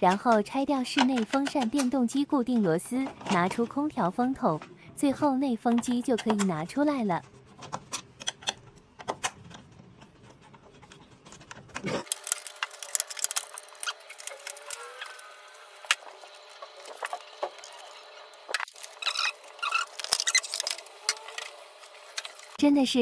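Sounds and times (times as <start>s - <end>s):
clicks knocks and scraping: 5.7s - 15.2s.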